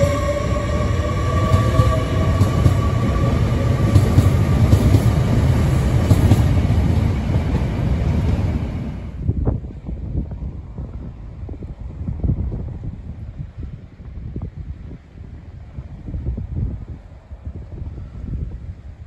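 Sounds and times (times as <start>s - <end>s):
train whine: 0.0s - 12.4s
train wheels rumbling: 0.0s - 13.9s.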